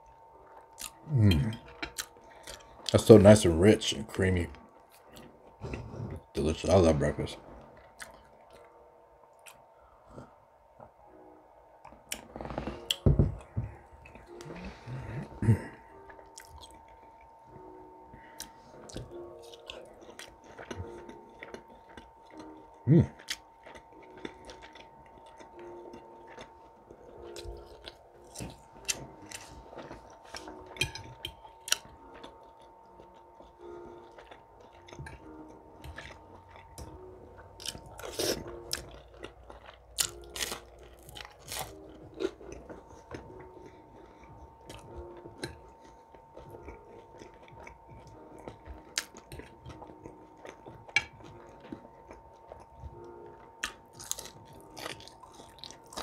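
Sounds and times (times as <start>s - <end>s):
person chewing food: 0.0s - 6.8s, 7.6s - 11.1s, 11.8s - 56.0s.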